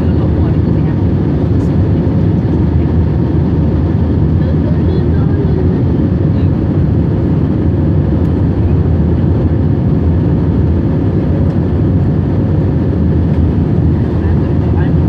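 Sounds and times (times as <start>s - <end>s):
jet engine rumble in cabin: 0.0s - 15.0s.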